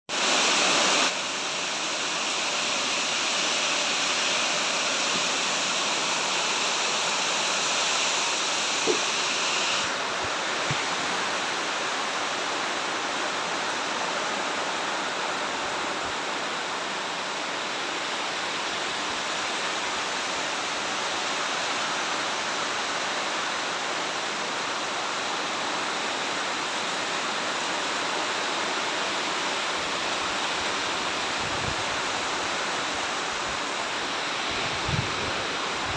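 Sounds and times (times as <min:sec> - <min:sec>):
steady rain hiss: 0:00.1 - 0:35.9.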